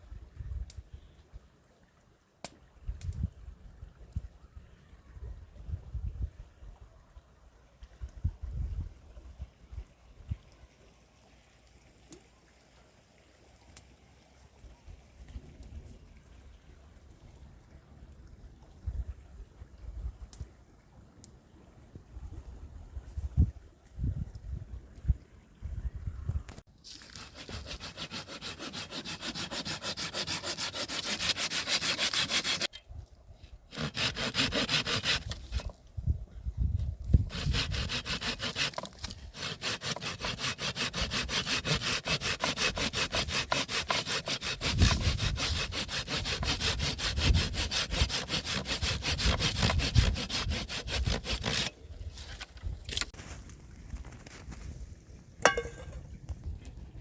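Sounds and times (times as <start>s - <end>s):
rasping sawing strokes: 26.9s - 32.8s, 33.7s - 35.8s, 37.3s - 53.1s.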